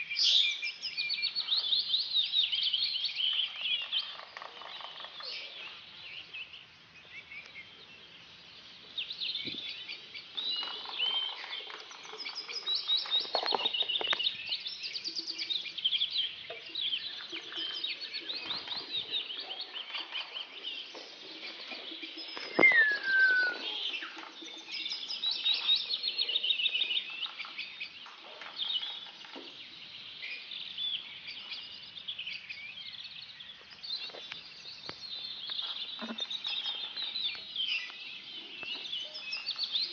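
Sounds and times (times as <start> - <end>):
birds chirping and twittering: 0.0 - 39.9
loud falling whistle: 22.6 - 23.7.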